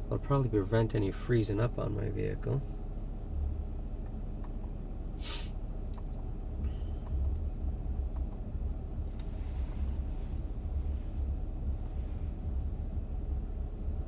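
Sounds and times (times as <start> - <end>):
minivan engine idling: 0.0 - 14.0
brief hiss: 5.2 - 5.6.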